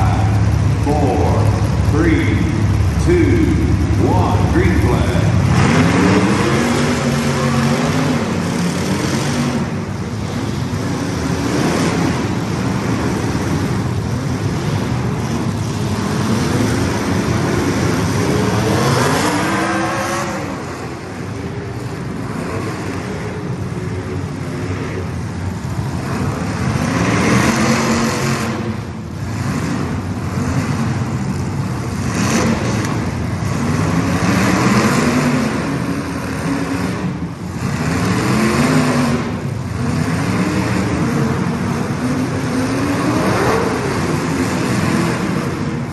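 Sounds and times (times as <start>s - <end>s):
race car engines: 0.0s - 45.9s.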